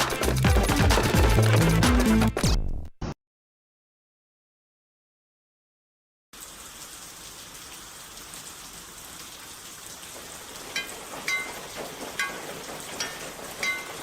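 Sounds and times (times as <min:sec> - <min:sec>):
steady rain: 0:06.4 - 0:14.0.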